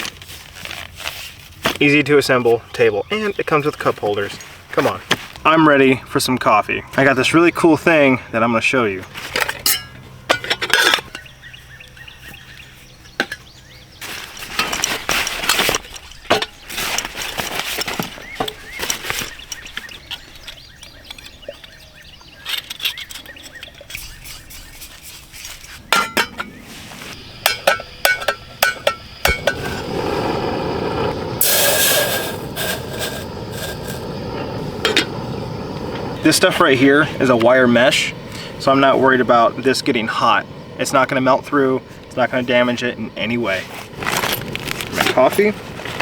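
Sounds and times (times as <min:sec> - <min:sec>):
metal cookware clinking: 0:09.4 - 0:11.4, 0:26.0 - 0:26.5, 0:27.4 - 0:29.6
steady rushing noise: 0:26.9 - 0:46.0.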